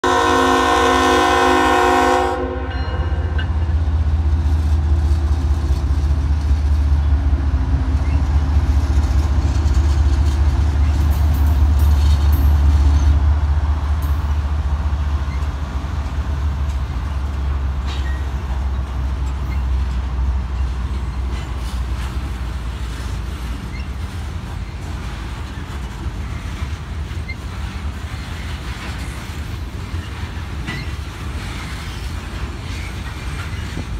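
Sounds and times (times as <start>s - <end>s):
locomotive horn: 0.0s - 3.4s
diesel locomotives rumbling past: 0.0s - 33.9s.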